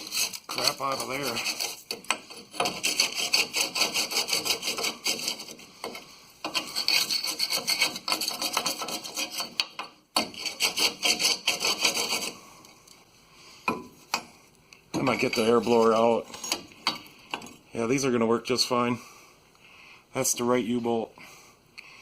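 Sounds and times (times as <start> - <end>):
hand tool scraping rust off metal: 0.0 - 12.4, 15.0 - 17.6.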